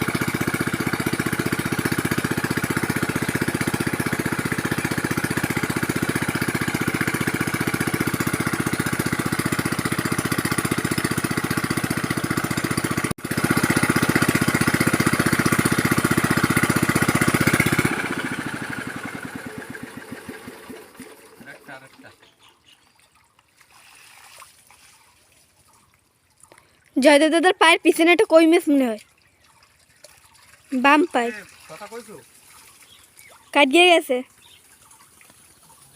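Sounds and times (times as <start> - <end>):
small engine running: 0.0 - 22.4, 30.8 - 35.8.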